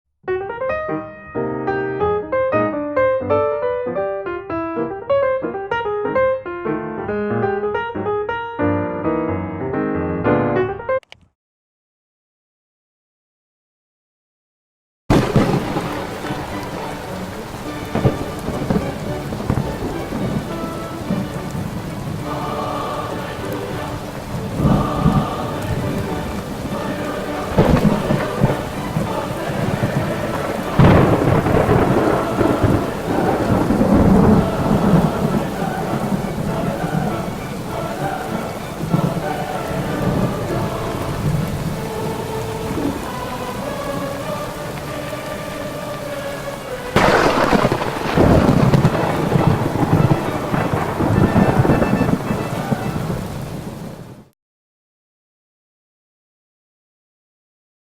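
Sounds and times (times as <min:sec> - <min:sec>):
thunder: 0:15.1 - 0:44.5, 0:47.0 - 0:54.3
heavy rain: 0:15.1 - 0:54.3.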